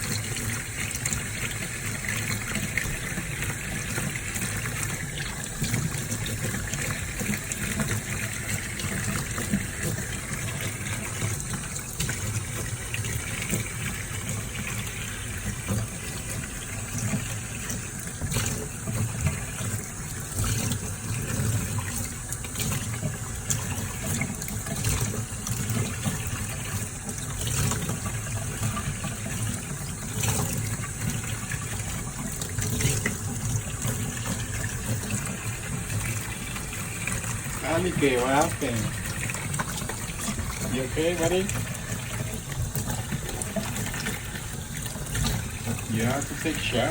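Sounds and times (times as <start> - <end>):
running water pouring: 0.0 - 46.9.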